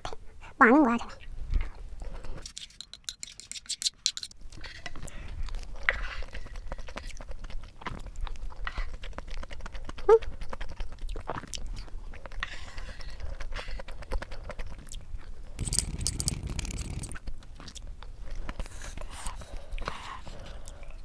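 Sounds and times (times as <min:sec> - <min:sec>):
chewing: 0:05.3 - 0:21.0
wooden spoon scraping on plate: 0:15.6 - 0:17.2.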